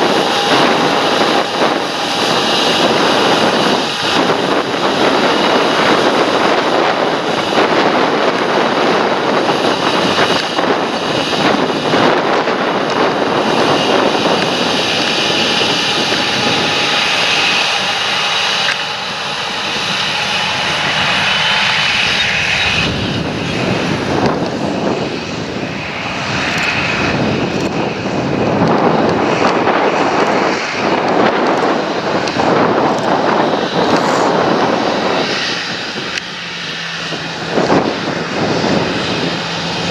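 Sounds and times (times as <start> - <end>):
high whine: 0.0 - 39.9
tractor diesel engine running: 0.0 - 39.9.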